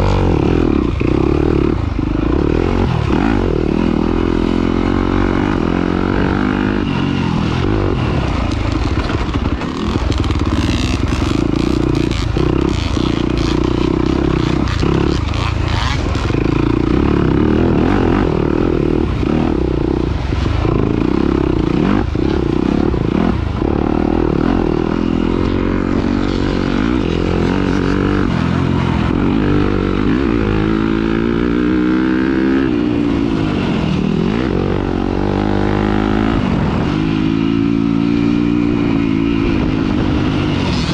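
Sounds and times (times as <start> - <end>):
racing engine revving: 0.0 - 40.9.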